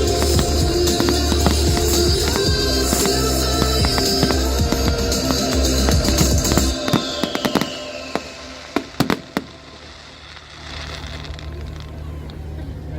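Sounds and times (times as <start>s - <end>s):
pop music with heavy bass: 0.0s - 9.2s
firework cracks: 0.0s - 12.1s.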